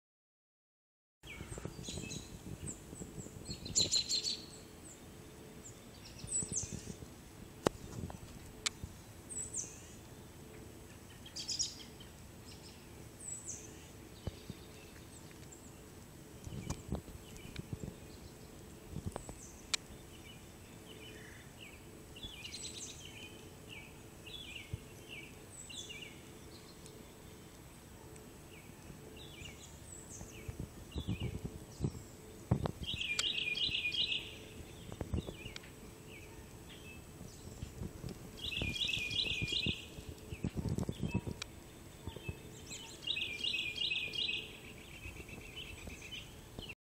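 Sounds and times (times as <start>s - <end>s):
low microphone rumbles: 1.2s - 9.5s, 28.9s - 44.2s
small birds singing: 1.2s - 46.8s.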